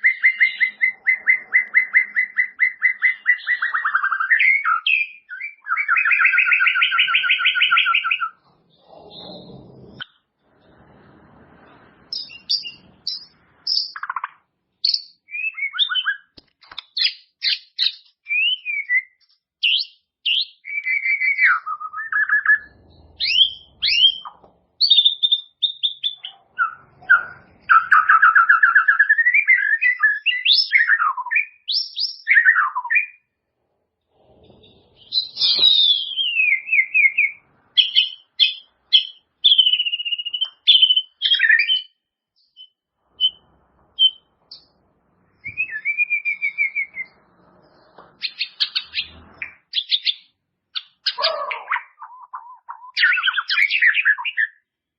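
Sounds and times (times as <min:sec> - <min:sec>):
songbird whistling song: 0:00.0 - 0:10.2, 0:12.1 - 0:33.4, 0:34.5 - 0:44.8, 0:45.4 - 0:54.8.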